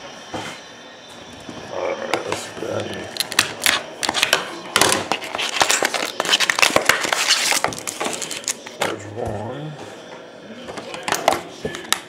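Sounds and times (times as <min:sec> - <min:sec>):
plastic wrapping crinkling and tearing: 0:03.1 - 0:08.8.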